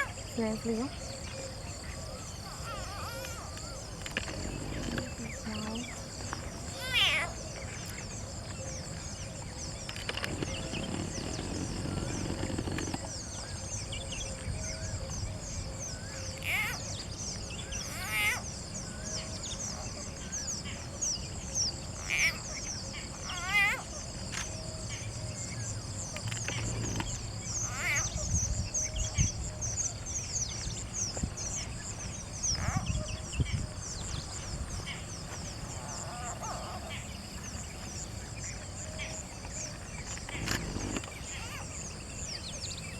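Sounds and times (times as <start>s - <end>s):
birds giving short calls: 39.6s - 42.9s.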